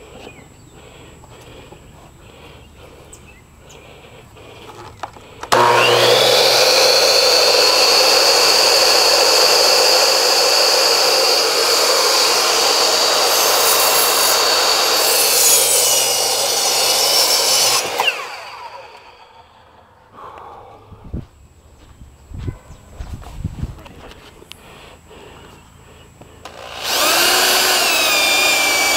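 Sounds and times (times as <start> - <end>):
electric power saw whining: 4.7 - 19.8, 26.4 - 28.9.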